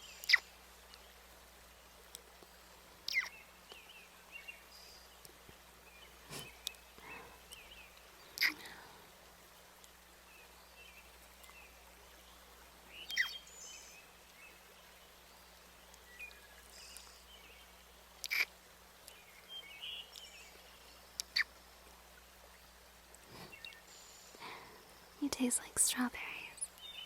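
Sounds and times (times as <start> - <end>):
faint steady hiss: 0.0 - 27.0
sharp bird calls: 3.1 - 3.4, 13.0 - 13.9, 18.2 - 18.5
bird chirps: 13.0 - 14.0.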